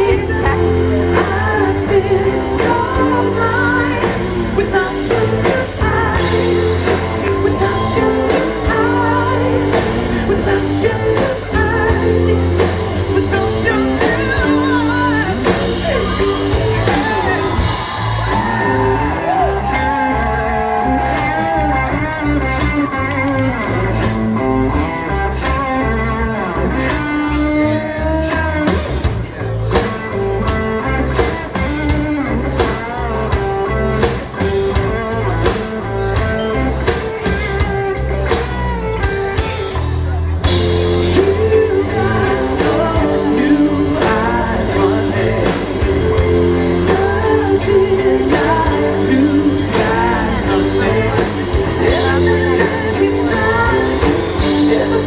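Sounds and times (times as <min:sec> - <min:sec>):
person singing: 0:00.0 - 0:23.8, 0:40.5 - 0:55.0
bass: 0:00.0 - 0:55.0
drums: 0:00.0 - 0:55.0
electric guitar: 0:00.0 - 0:55.0.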